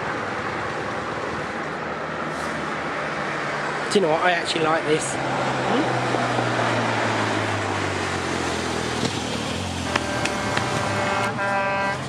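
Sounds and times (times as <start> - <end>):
road noise: 0.0 - 12.0
lorry engine passing: 0.2 - 12.0
truck horn: 9.8 - 12.0.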